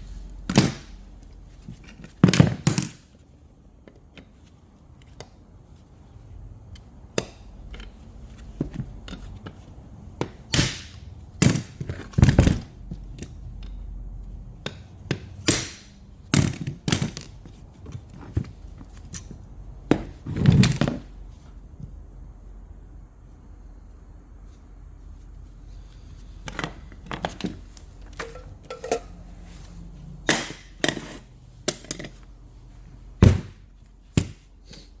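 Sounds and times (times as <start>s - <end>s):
tools knocking on metal parts: 14.6s - 19.3s, 26.5s - 29.2s, 30.3s - 32.3s.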